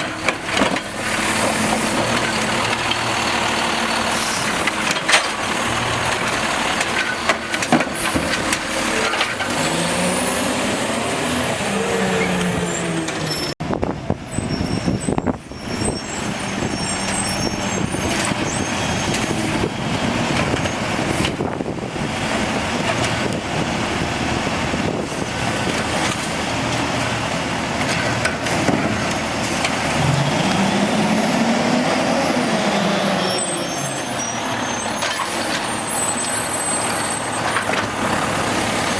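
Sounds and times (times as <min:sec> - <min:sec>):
garbage truck diesel engine revving: 0:00.0 - 0:13.6, 0:15.4 - 0:38.9.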